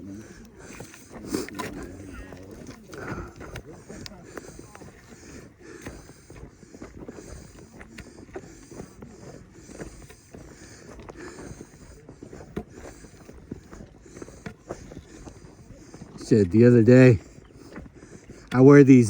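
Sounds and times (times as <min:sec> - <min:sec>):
footsteps crunching on dirt trail: 0:00.0 - 0:19.0.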